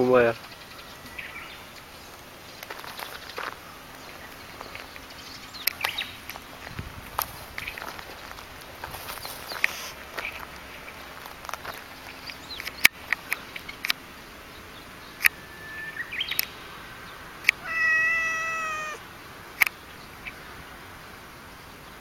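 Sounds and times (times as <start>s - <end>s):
cat yowling: 17.5s - 19.0s.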